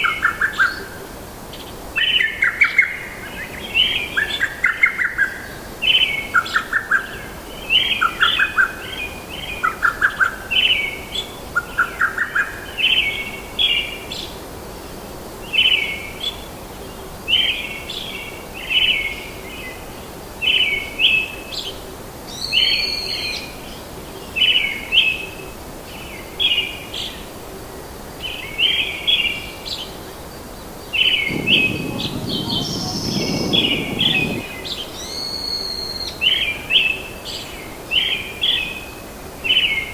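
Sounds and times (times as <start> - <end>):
birds chirping: 31.3 - 37.7
low rushing noise: 31.3 - 37.7
lower bird chirping call: 33.1 - 37.7.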